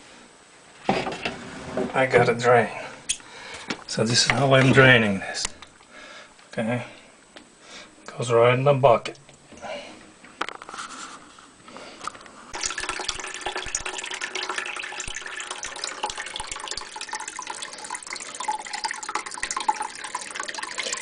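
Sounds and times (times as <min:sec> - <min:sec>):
water splashing into a bucket: 0:12.6 - 0:21.0.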